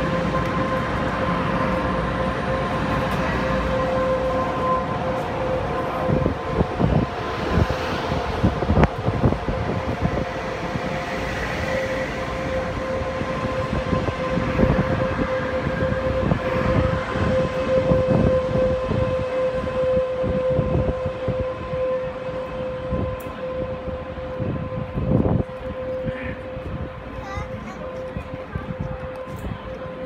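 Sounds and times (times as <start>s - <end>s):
electric train running rumble: 0.0s - 30.0s
steady high tone: 0.0s - 30.0s.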